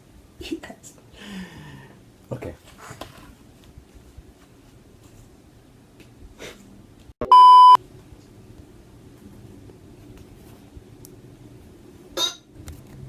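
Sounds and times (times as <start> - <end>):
censor bleep: 7.2 - 7.8.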